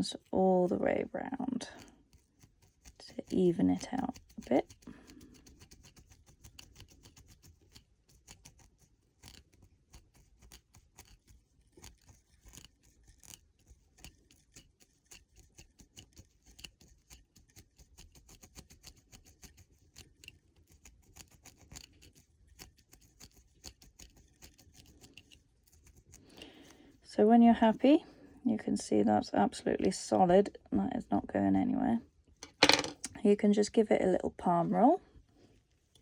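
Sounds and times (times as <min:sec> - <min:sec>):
crochet hook scratching hair: 0:00.0 - 0:26.7.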